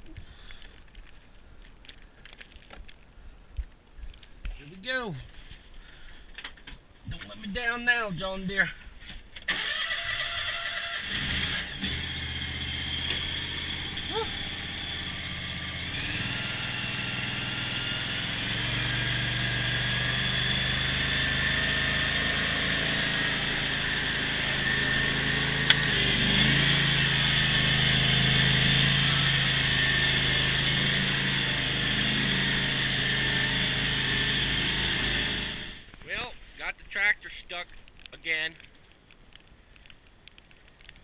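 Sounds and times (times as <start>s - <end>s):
lawn tractor engine running: 9.5s - 35.9s.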